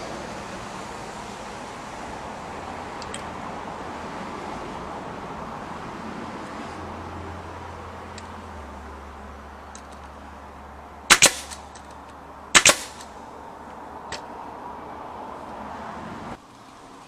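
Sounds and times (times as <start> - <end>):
sharp bangs with double snap: 11.1 - 11.9, 12.5 - 13.2.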